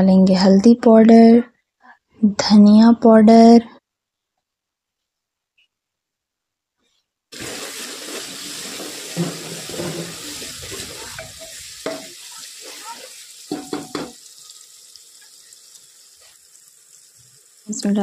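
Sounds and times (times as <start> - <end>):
masala sizzling in hot oil: 7.3 - 18.0
spatula knocking against pot: 11.2 - 12.2, 13.5 - 14.2.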